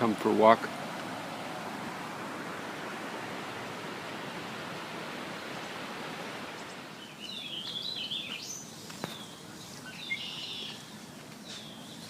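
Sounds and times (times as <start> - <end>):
steady rushing noise: 0.0 - 7.0
songbird chirping: 0.8 - 12.0.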